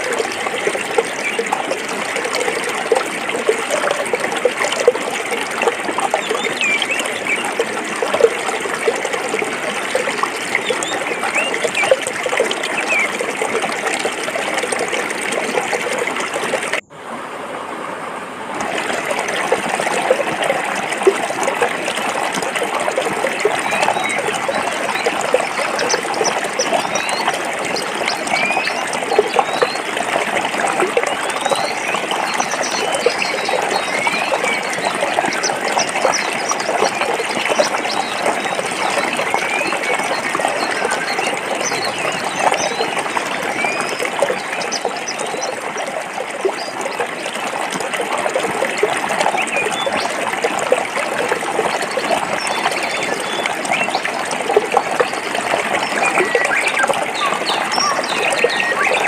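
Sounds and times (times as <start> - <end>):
stream water running over rocks: 0.0 - 59.0.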